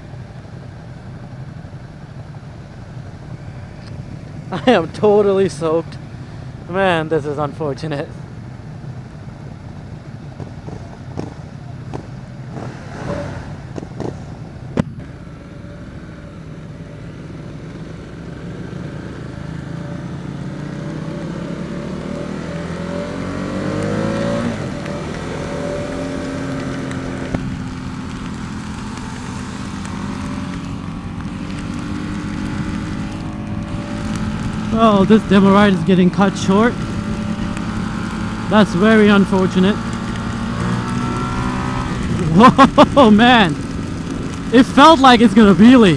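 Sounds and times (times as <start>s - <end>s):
wind and wet road noise: 0.0s - 45.9s
motorcycle engine accelerating: 10.3s - 45.9s
heavy rain: 22.0s - 45.9s.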